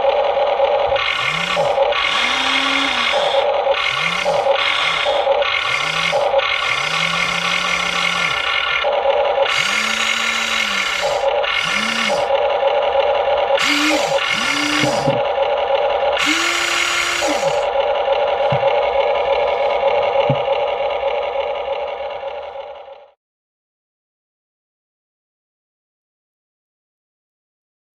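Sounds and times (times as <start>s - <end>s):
electric gear motors whirring: 0.0s - 22.6s
steady hum: 0.8s - 22.7s.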